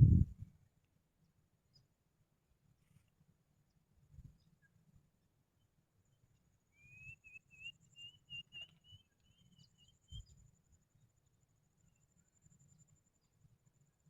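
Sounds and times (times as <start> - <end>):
bird's wavering whistle: 6.8 - 10.3.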